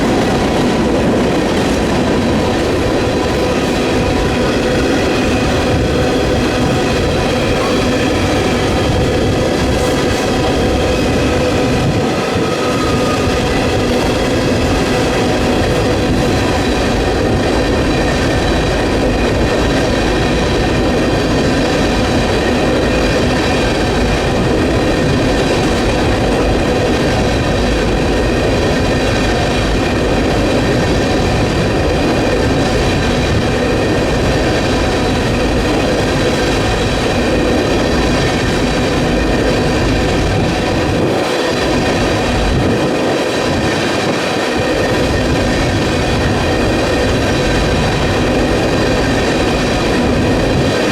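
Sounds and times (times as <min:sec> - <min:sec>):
steel wheels rumbling on rail: 0:00.0 - 0:50.9
wind buffeting microphone: 0:00.0 - 0:50.9.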